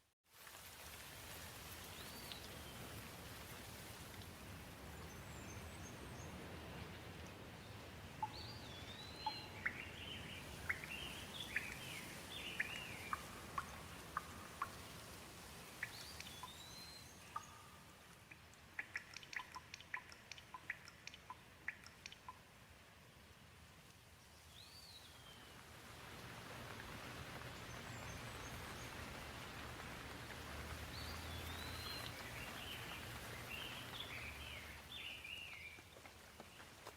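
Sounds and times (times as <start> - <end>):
light rain falling: 0.0 - 36.9
bird chirping: 8.2 - 14.8, 15.8 - 22.4, 30.9 - 35.8.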